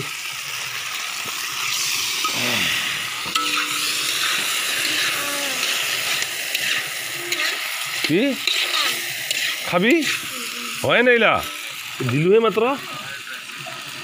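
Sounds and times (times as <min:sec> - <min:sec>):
meat sizzling in a wok: 0:00.0 - 0:14.0
metal spatula scraping a pan: 0:03.3 - 0:10.3.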